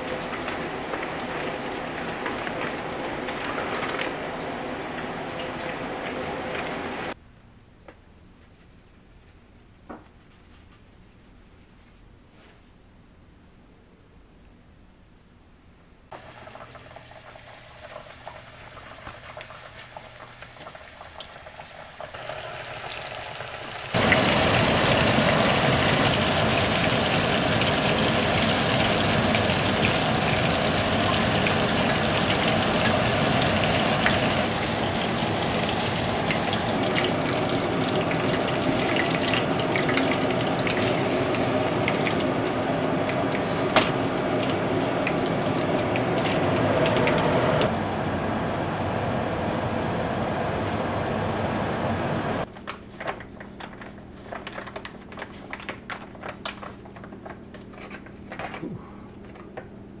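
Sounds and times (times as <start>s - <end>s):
fish frying in hot oil: 16.2s - 47.6s.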